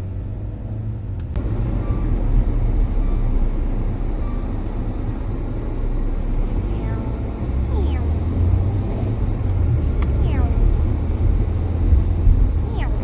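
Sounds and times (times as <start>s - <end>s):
engine and road rumble in car: 0.0s - 13.0s.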